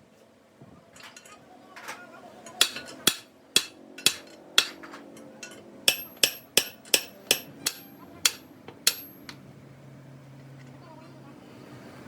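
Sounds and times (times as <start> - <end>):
hammer striking metal: 2.6 - 9.4.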